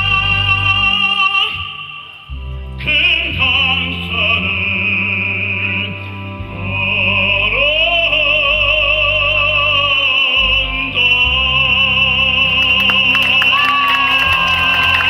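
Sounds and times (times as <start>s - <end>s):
operatic singing with vibrato: 0.0s - 15.0s
scattered clapping: 12.5s - 15.0s.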